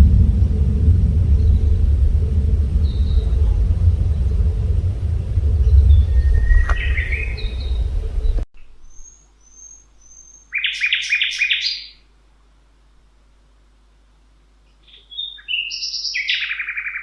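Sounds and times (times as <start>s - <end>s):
loud low rumble: 0.0s - 8.5s
bird chirping: 0.0s - 11.9s
thin high bird whistles: 2.7s - 10.7s.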